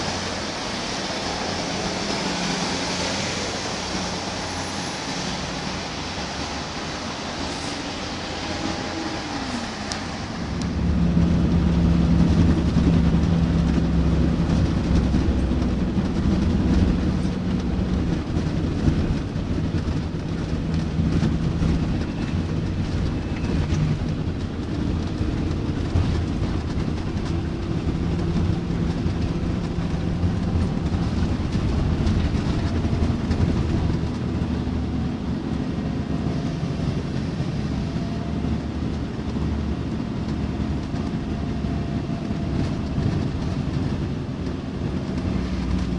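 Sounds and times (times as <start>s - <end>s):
bus diesel engine running: 0.0s - 45.9s
road and body rumble: 0.0s - 45.9s.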